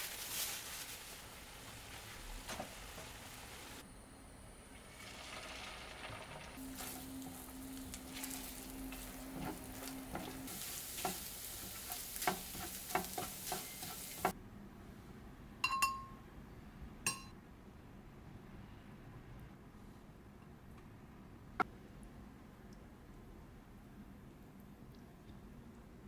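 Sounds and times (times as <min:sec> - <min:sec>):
food sizzling in a frying pan: 0:05.1 - 0:14.4
spatula tapping and scraping: 0:08.2 - 0:14.4
dishware clinks: 0:15.6 - 0:16.1, 0:17.1 - 0:17.3.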